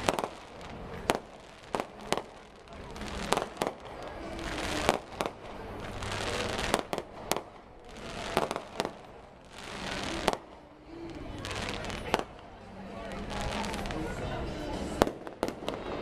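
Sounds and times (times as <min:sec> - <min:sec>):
fireworks bursting bangs: 0:00.0 - 0:12.4, 0:13.2 - 0:16.0
fireworks hiss: 0:00.0 - 0:12.4.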